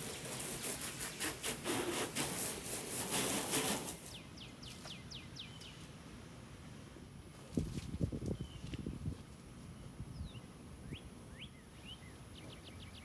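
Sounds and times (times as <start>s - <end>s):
rapid scrubbing strokes: 0.0s - 4.1s
bird chirping: 4.1s - 5.8s, 10.1s - 13.0s.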